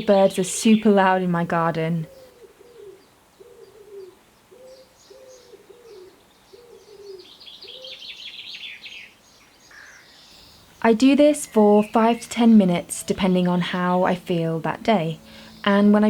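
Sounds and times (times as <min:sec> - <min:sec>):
songbird twittering: 0:00.0 - 0:16.0
pigeon cooing: 0:02.0 - 0:08.2.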